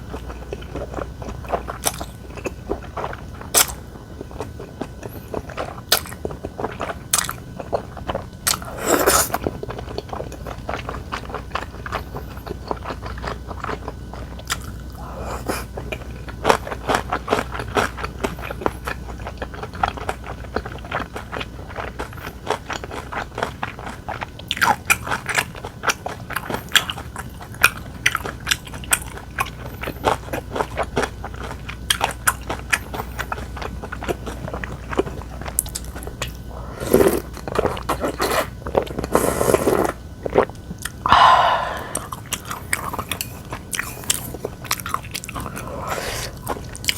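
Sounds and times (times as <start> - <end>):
wet chewing and crunchy biting: 0.0 - 46.9
loud mouth sounds: 41.1 - 42.2.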